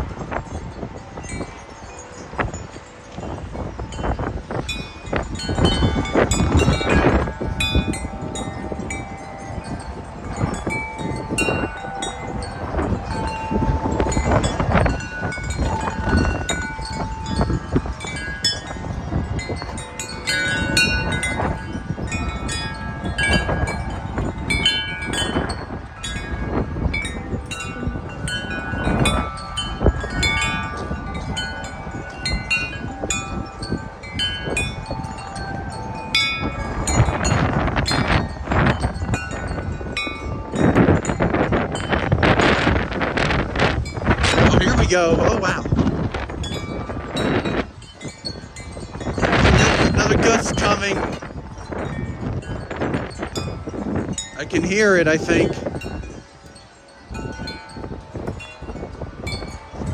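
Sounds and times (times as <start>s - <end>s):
wind chimes ringing: 0.0s - 59.9s
wind rumble on microphone: 0.0s - 59.9s.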